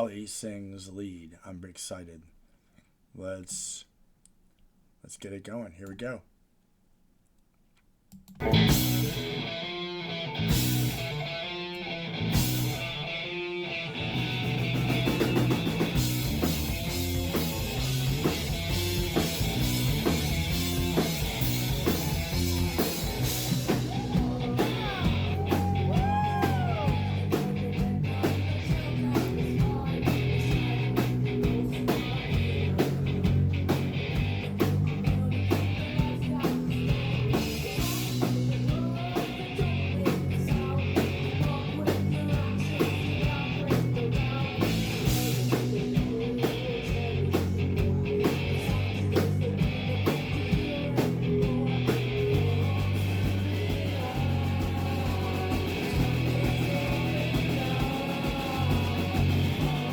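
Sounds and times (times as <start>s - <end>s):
drums: 8.2s - 59.9s
bass guitar: 8.3s - 59.9s
electric guitar: 8.4s - 59.9s
person singing: 20.7s - 59.9s.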